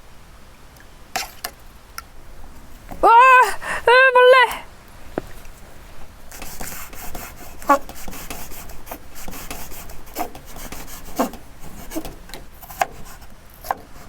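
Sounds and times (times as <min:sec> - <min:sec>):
knife cutting on wooden board: 0:06.3 - 0:13.9.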